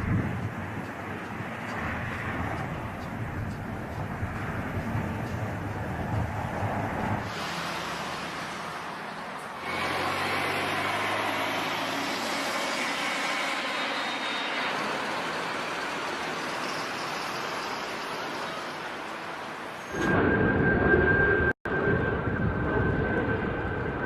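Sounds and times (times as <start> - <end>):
aircraft engine rushing: 0.0 - 24.0.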